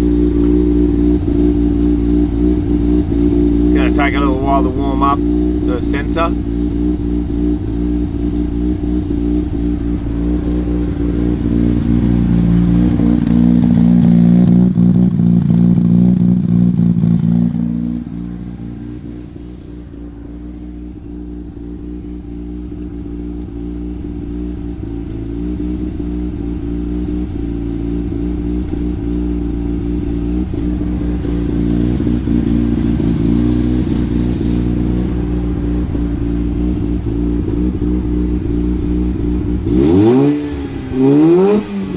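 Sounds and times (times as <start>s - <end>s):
rotary car engine revving: 0.0s - 41.9s.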